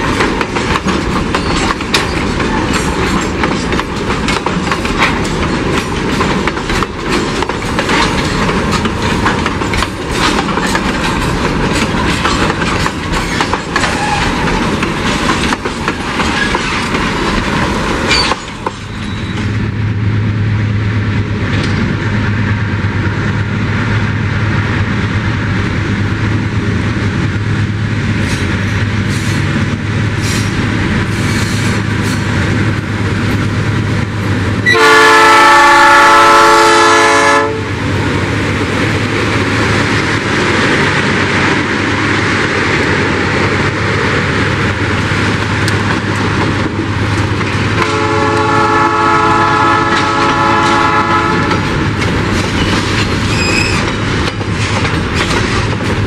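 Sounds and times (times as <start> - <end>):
freight wagons rolling past: 0.0 - 19.6
wheels clicking over rail joints: 0.0 - 19.6, 38.4 - 56.0
diesel locomotive drone: 0.0 - 56.0.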